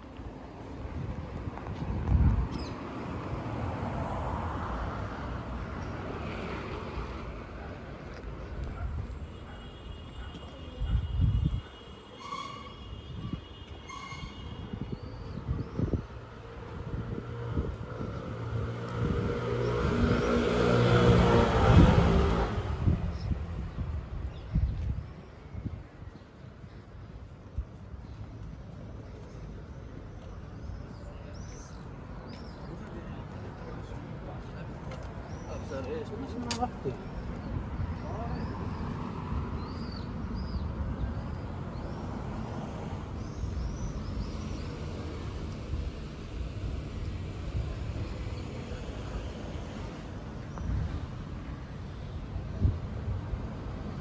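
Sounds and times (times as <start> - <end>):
traffic rumble: 0.0 - 54.0
vehicle driving past: 17.2 - 23.0.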